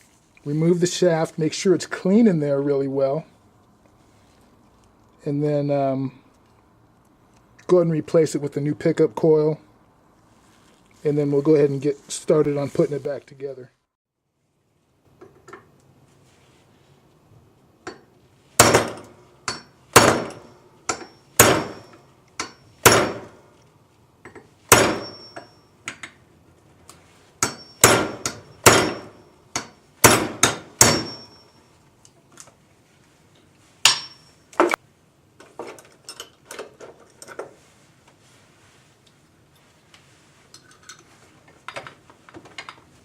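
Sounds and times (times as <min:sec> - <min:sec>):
hammer striking metal punch: 0:18.6 - 0:23.4, 0:24.3 - 0:25.6, 0:27.4 - 0:31.5, 0:33.8 - 0:34.8
light metallic taps and clinks: 0:24.2 - 0:24.5, 0:25.1 - 0:26.2.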